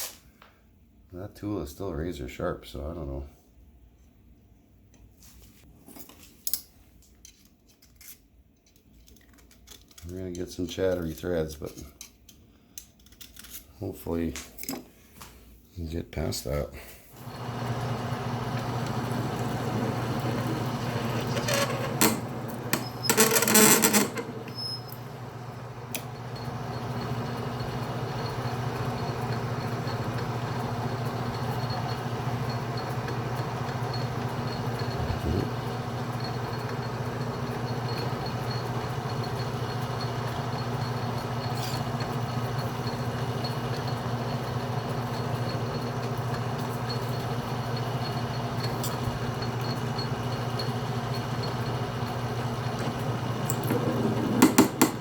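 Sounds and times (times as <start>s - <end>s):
metal lathe running: 17.2s - 55.0s.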